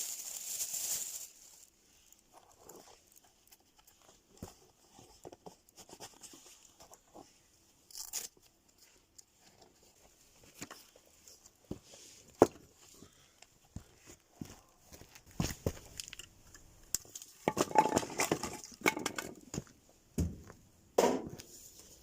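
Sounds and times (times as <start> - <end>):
sharp loud pop: 21.0 - 21.3.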